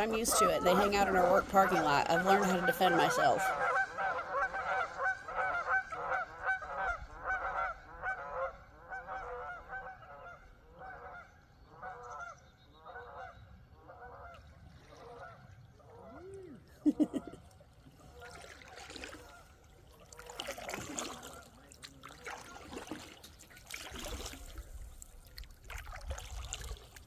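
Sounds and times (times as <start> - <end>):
geese honking: 0.0 - 14.4.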